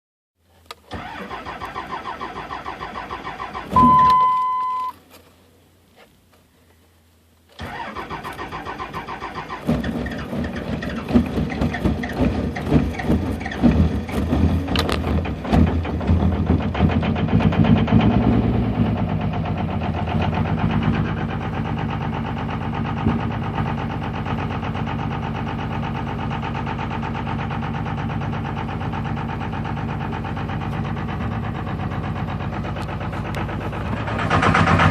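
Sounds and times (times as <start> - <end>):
diesel engine starting and idling: 0.6 - 5.9, 7.0 - 34.9
loud electronic beep: 3.7 - 5.0.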